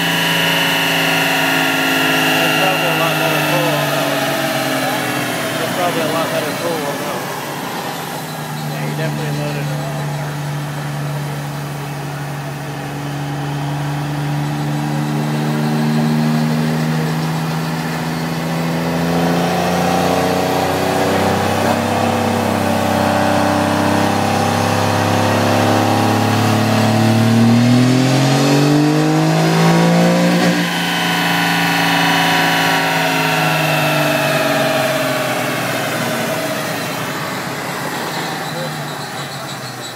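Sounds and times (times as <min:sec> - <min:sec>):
diesel pickup engine revving: 0:00.0 - 0:39.9.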